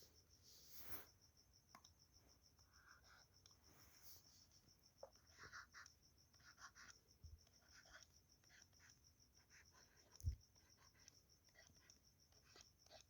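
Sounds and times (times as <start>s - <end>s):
pen scratching while writing: 5.1s - 13.0s.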